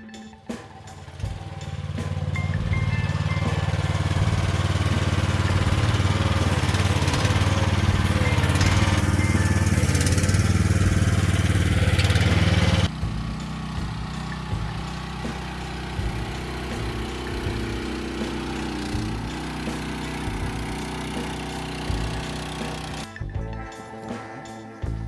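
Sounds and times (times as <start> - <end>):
excavator engine chugging: 0.3 - 23.1.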